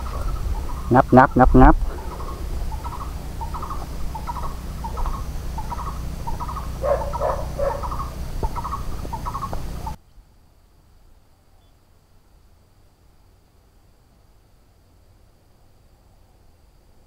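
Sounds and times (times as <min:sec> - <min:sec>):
low rumble: 0:00.0 - 0:10.0
bird chirping: 0:00.0 - 0:10.2.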